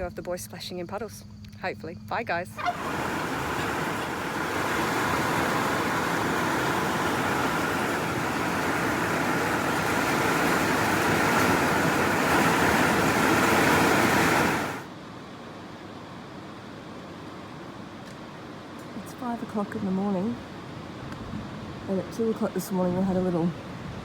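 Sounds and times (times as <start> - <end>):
heavy rain pouring: 2.6 - 14.9.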